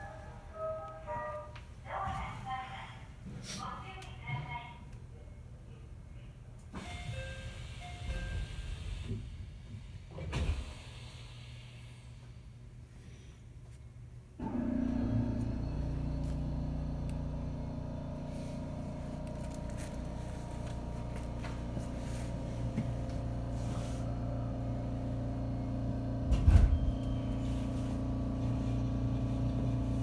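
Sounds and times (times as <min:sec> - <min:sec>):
train rumble from inside: 0:06.9 - 0:12.0
electric hum: 0:14.5 - 0:30.0.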